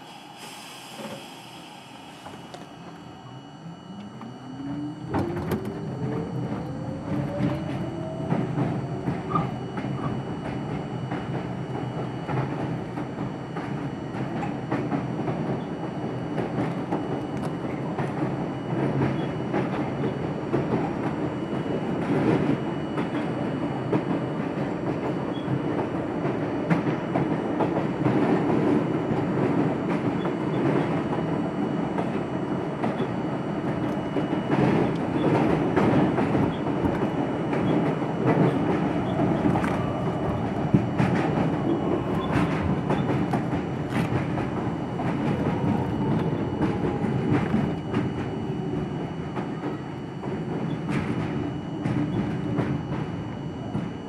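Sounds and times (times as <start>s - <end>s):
subway car wheels rumbling: 0.0s - 54.0s
rail joints clickety-clack: 5.1s - 54.0s.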